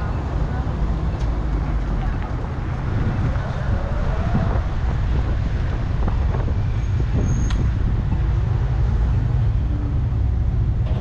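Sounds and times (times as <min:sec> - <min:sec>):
street noise: 0:00.0 - 0:11.0
wind buffeting microphone: 0:00.0 - 0:11.0.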